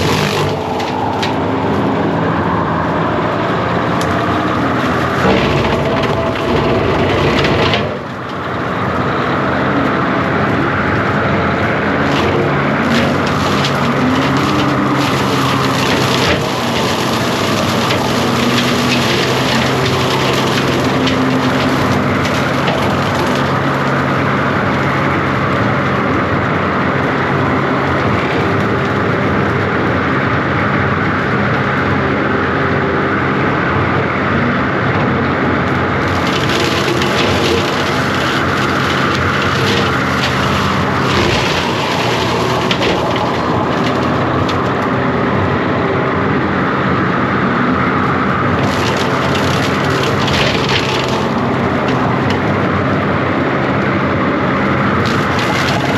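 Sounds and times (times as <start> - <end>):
branches cracking and snapping: 0.0 - 30.4, 35.5 - 55.9
diesel engine running under load: 0.0 - 55.9.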